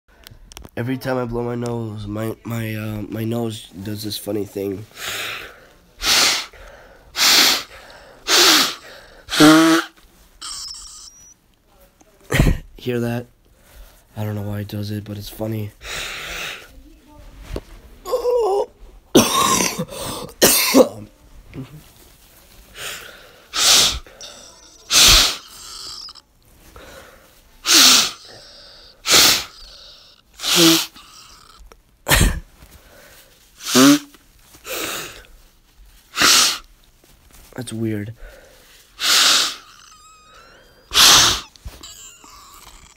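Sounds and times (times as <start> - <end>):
person blowing nose: 5.0 - 11.3, 22.7 - 32.5, 33.5 - 35.3, 36.1 - 36.7, 38.3 - 42.9
nasal hiss with whistle: 8.3 - 9.8, 10.4 - 11.3, 23.5 - 26.2, 27.6 - 31.0, 39.0 - 42.6.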